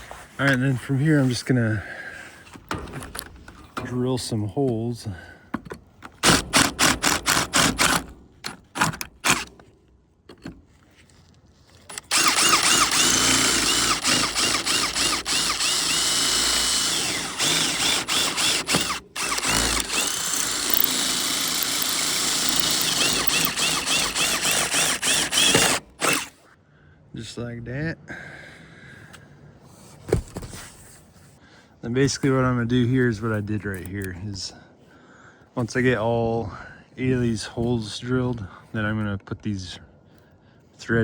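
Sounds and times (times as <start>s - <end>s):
power drill boring metal: 6.2s - 8.1s, 8.7s - 9.6s, 11.9s - 26.4s
drill bit squealing: 11.9s - 26.4s.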